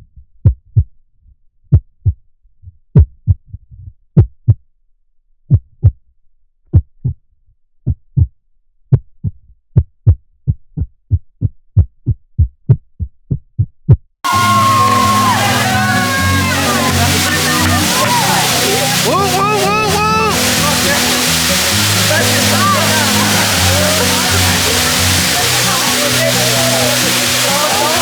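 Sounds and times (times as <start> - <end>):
music: 14.3 - 28.0.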